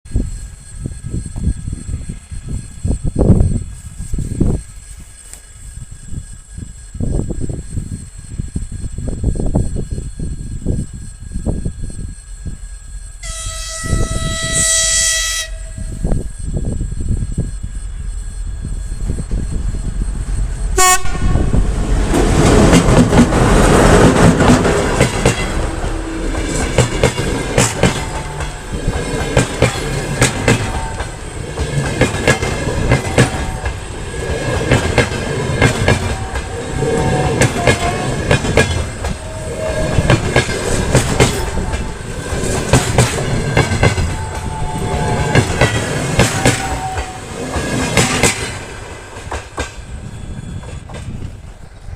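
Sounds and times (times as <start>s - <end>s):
diesel locomotive passing: 0.1s - 51.9s
wheels clacking over rail joints: 21.8s - 51.9s.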